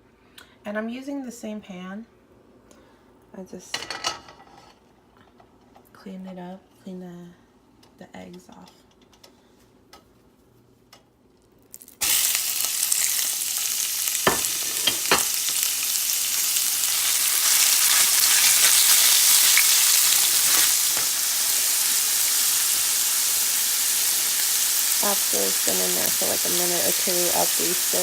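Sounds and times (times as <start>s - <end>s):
chicken sizzling in hot oil: 11.8s - 28.0s.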